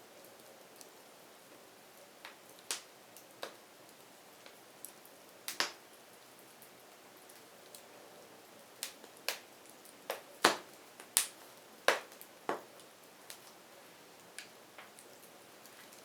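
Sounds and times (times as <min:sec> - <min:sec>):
firewood crackling and popping: 0:00.4 - 0:16.0.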